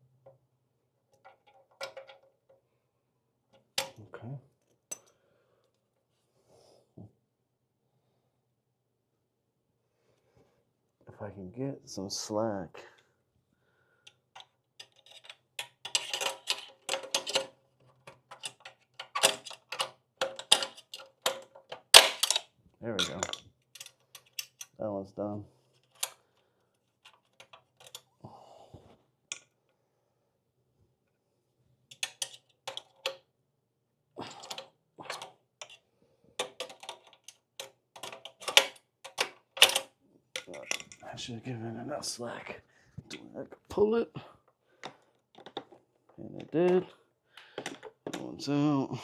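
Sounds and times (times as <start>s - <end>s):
hard parts clicking and rattling: 1.1s - 2.6s, 3.5s - 4.0s, 14.1s - 24.8s, 25.8s - 26.2s, 27.0s - 28.1s, 31.9s - 33.2s, 34.2s - 35.8s, 36.4s - 41.1s, 44.8s - 48.4s.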